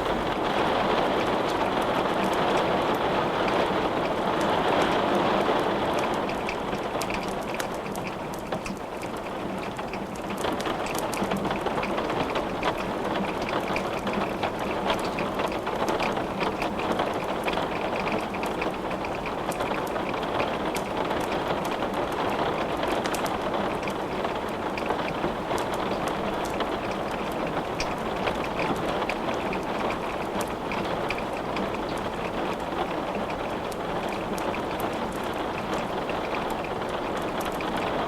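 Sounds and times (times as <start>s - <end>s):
sharp rain ticks: 0.0s - 38.0s
steady rain hissing: 0.0s - 38.0s.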